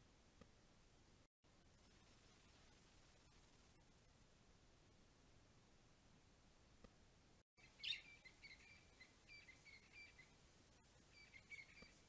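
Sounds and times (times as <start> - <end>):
soft hiss: 0.0 - 12.0
faint bird song: 7.6 - 12.0.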